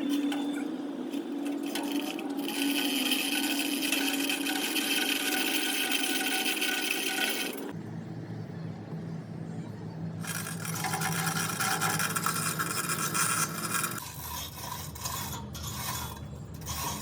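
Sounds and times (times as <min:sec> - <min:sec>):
low hum: 0:07.7 - 0:14.0
power tool whining: 0:10.2 - 0:14.0.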